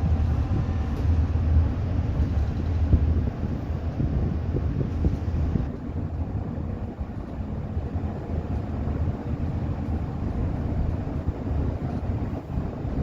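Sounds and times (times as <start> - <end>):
bus engine rumble: 0.0 - 13.0
tyres on road: 0.0 - 13.0.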